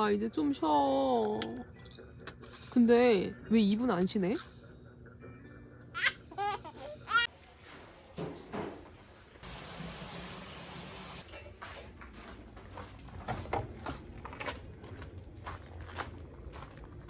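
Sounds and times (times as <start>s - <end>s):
water running from a tap: 9.4s - 11.2s.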